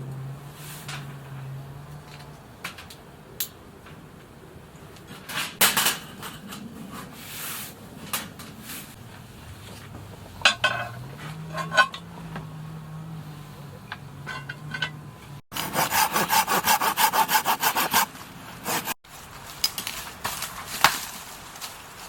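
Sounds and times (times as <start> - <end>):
cookware clinking and clattering: 10.2 - 12.1, 14.2 - 15.0.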